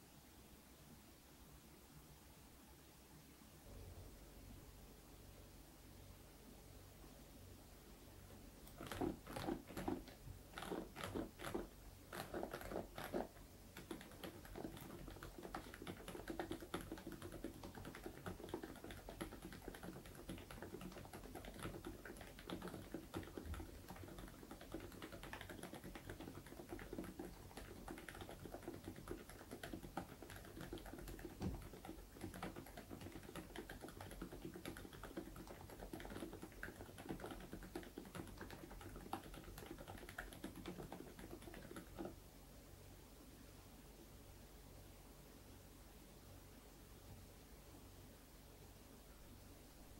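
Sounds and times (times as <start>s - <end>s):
fast typing on mechanical keyboard: 8.7s - 42.2s.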